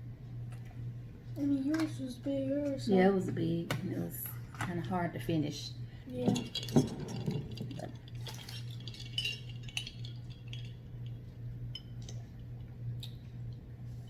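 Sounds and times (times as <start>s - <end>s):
steady low hum: 0.0s - 14.0s
utensils clinking against dishes: 6.1s - 12.2s.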